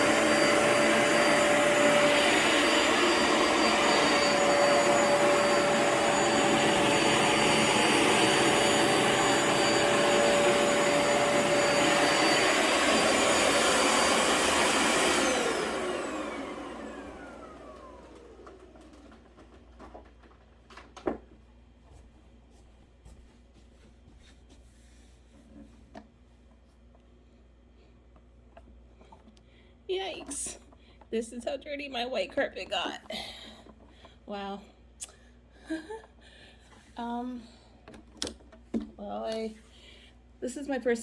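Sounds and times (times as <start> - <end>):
vacuum motor whine: 0.0 - 20.0.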